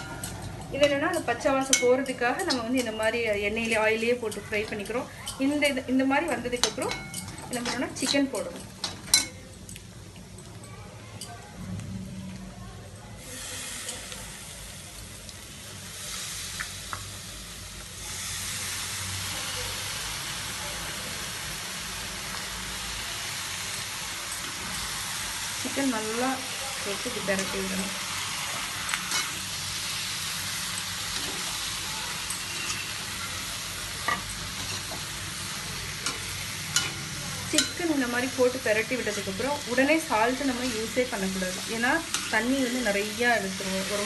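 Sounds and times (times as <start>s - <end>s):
chicken sizzling in hot oil: 13.2s - 44.0s
spoon stirring in pan: 26.4s - 43.2s.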